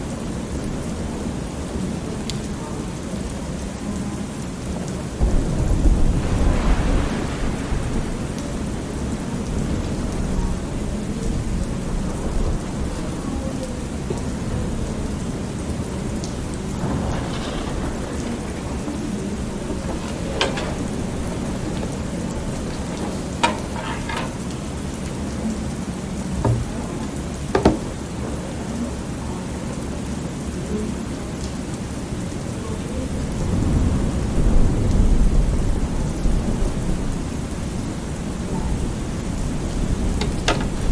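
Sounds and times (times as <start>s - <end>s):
steady rain: 0.0s - 40.9s
rolling thunder: 5.0s - 25.0s, 32.5s - 40.9s.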